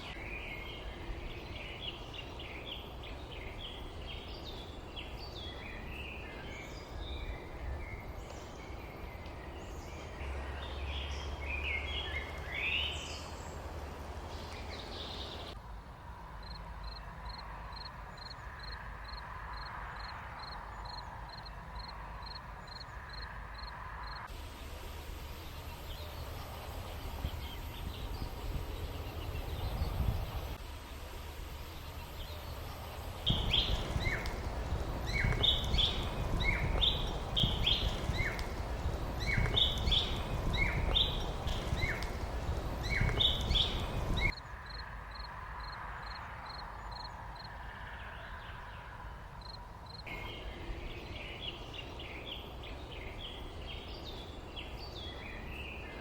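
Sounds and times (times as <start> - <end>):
small birds chirping: 0.0 - 15.6, 20.3 - 45.3
steady low rumble: 24.2 - 44.4.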